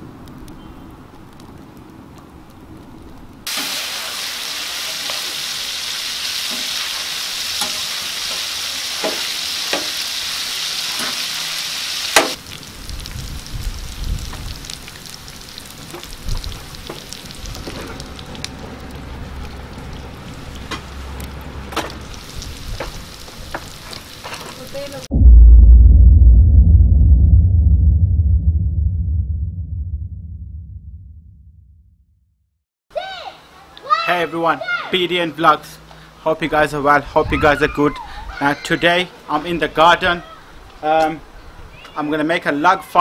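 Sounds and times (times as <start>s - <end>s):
food sizzling in hot oil: 3.5s - 25.1s.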